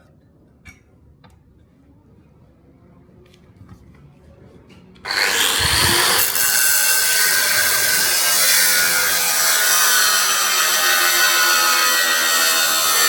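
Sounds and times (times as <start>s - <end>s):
power tool grinding metal: 5.0s - 13.0s.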